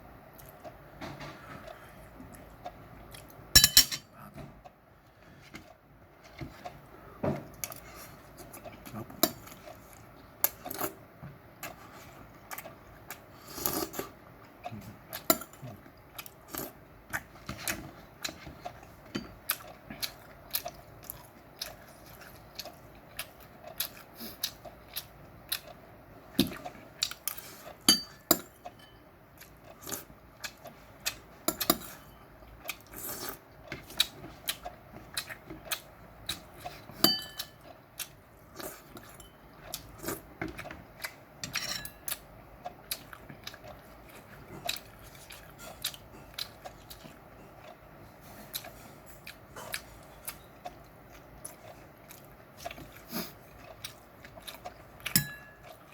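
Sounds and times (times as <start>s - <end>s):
chewing meat: 1.5s - 3.5s, 5.5s - 27.9s, 28.6s - 55.9s
utensils clinking against dish: 3.6s - 4.1s, 27.9s - 29.0s, 37.0s - 37.6s, 41.4s - 42.1s, 55.1s - 55.7s.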